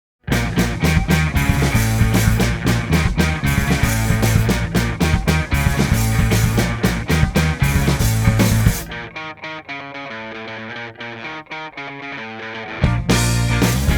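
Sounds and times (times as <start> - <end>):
electric guitars: 0.2 - 13.9
drum kit steady beat: 0.3 - 8.9, 12.9 - 13.9
bass notes: 0.3 - 9.1, 12.8 - 13.9.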